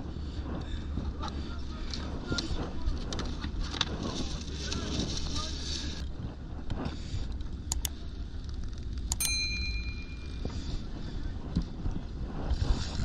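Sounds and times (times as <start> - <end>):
sharp metallic clink: 9.1 - 10.5.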